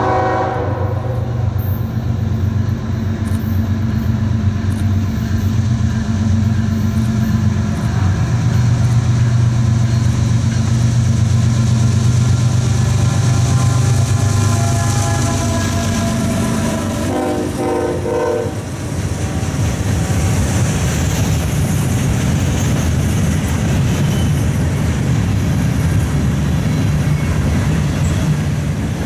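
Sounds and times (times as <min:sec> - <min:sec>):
train horn: 0:00.0 - 0:01.8, 0:12.6 - 0:20.5
diesel locomotive engine drone: 0:00.0 - 0:29.0.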